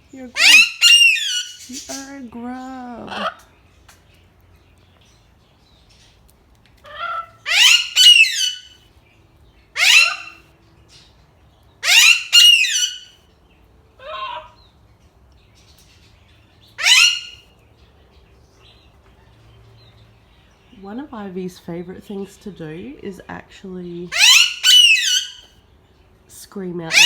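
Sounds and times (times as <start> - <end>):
parakeet screaming: 0.3 - 2.1, 3.0 - 3.4, 6.8 - 8.8, 9.8 - 10.4, 11.8 - 13.2, 14.0 - 14.6, 16.8 - 17.4, 24.1 - 25.5.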